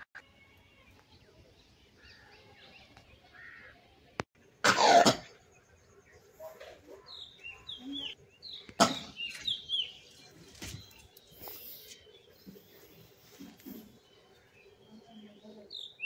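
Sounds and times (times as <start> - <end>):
small birds chirping: 5.2 - 16.0.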